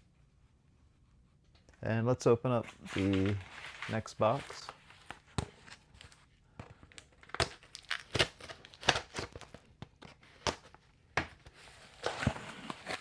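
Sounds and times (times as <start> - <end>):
packaging tearing and crinkling: 6.9 - 10.8, 11.6 - 13.0.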